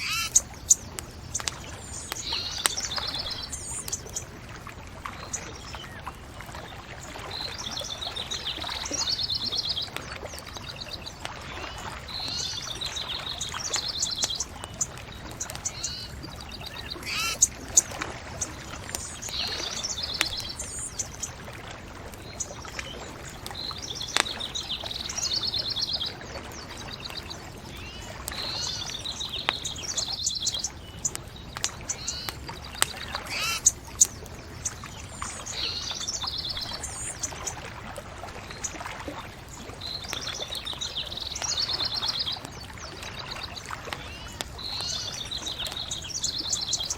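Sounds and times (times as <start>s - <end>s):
songbird trilling: 0.0s - 4.3s, 11.6s - 21.3s, 26.8s - 37.6s
bonfire hissing and crackling: 0.0s - 46.9s
fire pops: 0.4s - 4.3s, 31.0s - 33.0s.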